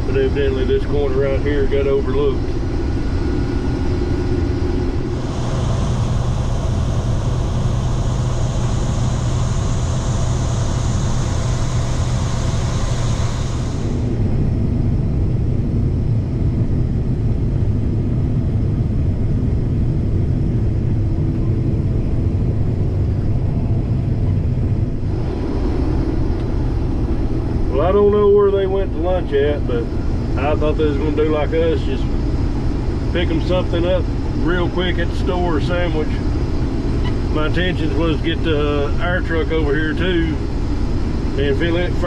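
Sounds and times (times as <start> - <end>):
combine harvester rumble: 0.0 - 42.0
high hiss: 5.1 - 14.1.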